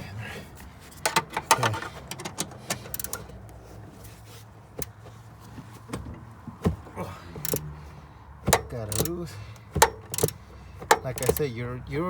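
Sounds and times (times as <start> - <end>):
metal clicks and knocks: 0.9 - 3.5, 8.4 - 11.5
ratchet wrench clicking: 1.0 - 3.3, 7.4 - 7.7, 8.5 - 11.5.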